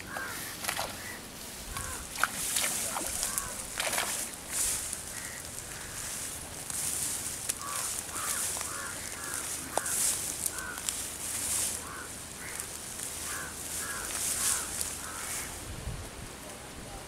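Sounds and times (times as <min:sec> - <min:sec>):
bird calling: 0:00.0 - 0:15.6
steady high hiss: 0:00.0 - 0:17.0.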